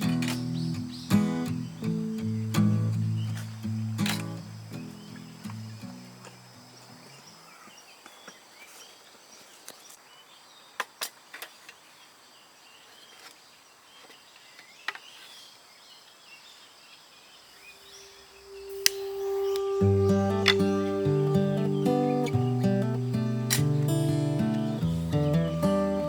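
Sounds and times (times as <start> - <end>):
music with held note: 17.8 - 26.0.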